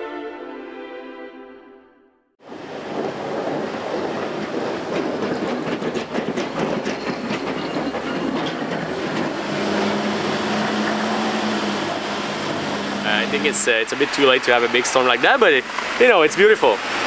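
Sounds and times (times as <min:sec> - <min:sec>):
clattering vehicle rumble: 0:02.5 - 0:16.0.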